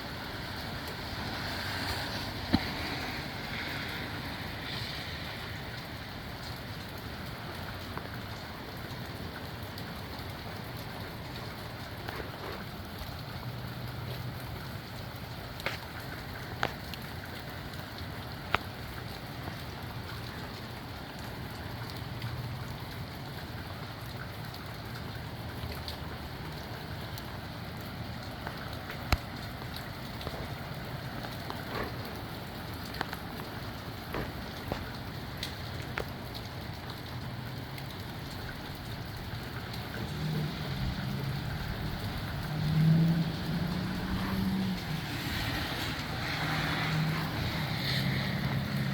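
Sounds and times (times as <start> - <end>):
steady rain falling: 0.0 - 48.9
wind gusts rumbling: 38.6 - 48.9.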